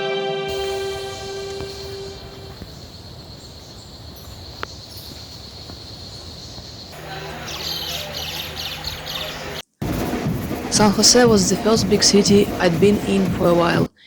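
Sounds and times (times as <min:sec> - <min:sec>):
high-pitched insect drone: 0:00.5 - 0:06.8
low hum: 0:00.5 - 0:07.5
high chirping: 0:00.5 - 0:09.6.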